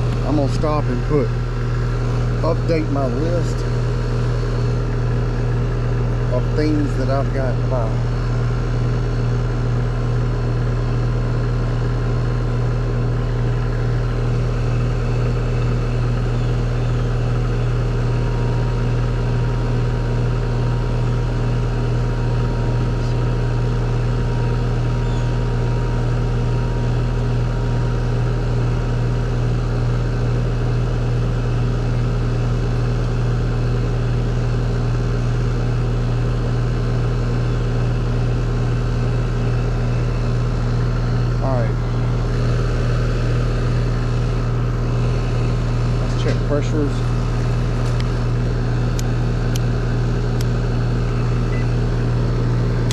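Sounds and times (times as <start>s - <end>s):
machine humming: 0.0s - 52.9s.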